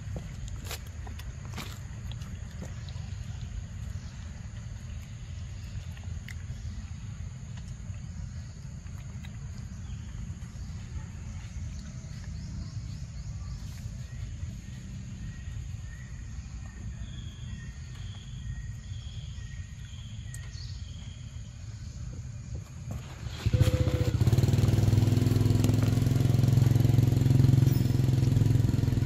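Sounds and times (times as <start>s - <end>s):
low outdoor rumble: 0.0s - 29.0s.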